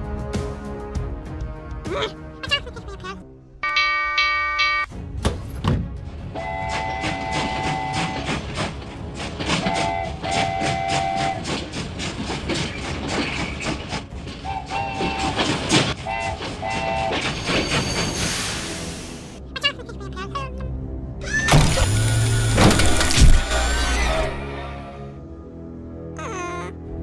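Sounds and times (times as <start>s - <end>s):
train whistle blasts: 6.4s - 8.3s, 9.6s - 11.5s, 14.5s - 15.4s, 16.0s - 18.1s
train wheels clacking on rails: 6.4s - 18.3s.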